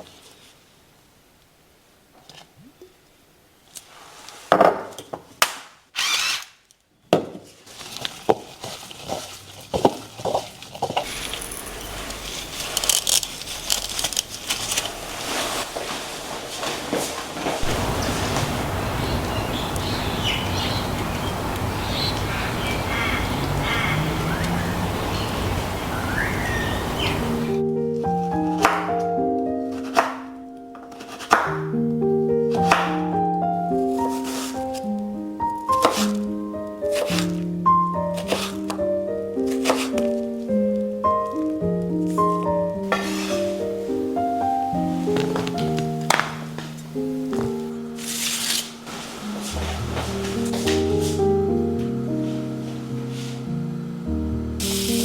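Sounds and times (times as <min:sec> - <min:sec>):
steady rumbling background noise: 0:11.1 - 0:27.6
birds chirping and calling: 0:17.6 - 0:27.6
loud hissing rasp: 0:17.6 - 0:27.6, 0:54.6 - 0:55.0
soft music: 0:17.6 - 0:55.0.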